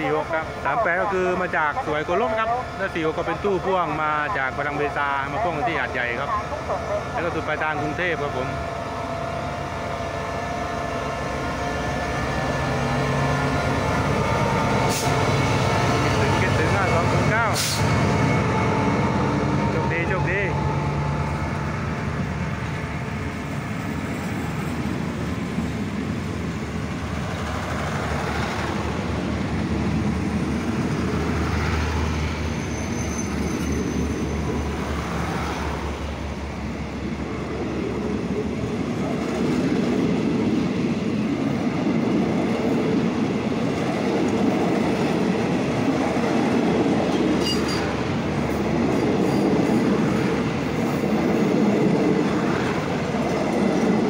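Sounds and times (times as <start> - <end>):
train wheels clattering on track: 39.0 - 54.0.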